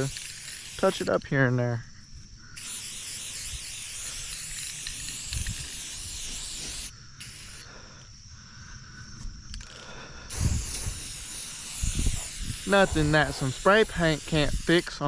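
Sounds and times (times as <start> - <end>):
spray paint can hissing: 0.0 - 1.2, 2.6 - 7.7, 9.6 - 15.0.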